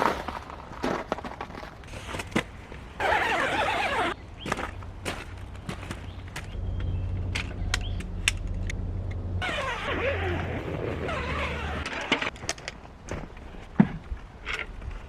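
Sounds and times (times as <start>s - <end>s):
creaking and squeaking: 3.0s - 4.2s, 6.3s - 12.4s
steady low hum: 4.7s - 11.9s.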